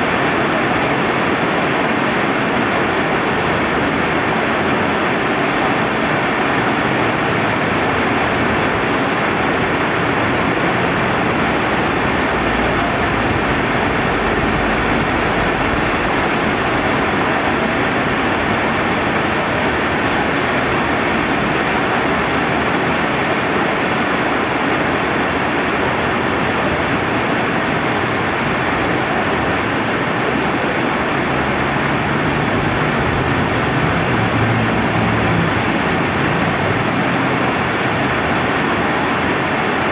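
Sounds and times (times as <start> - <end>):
river flowing: 0.0 - 39.9
steady rain falling: 0.0 - 39.9.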